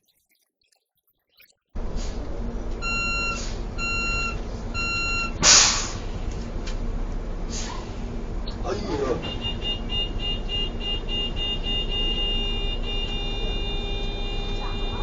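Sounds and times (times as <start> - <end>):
steady low rumble: 1.8 - 15.0
electronic beeps: 2.8 - 5.4
short loud burst of noise: 5.4 - 6.2.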